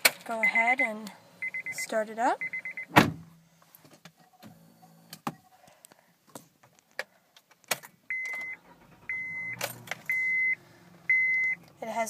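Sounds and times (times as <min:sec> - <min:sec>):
dashboard warning chime beeping: 0:00.3 - 0:03.0, 0:08.1 - 0:12.0.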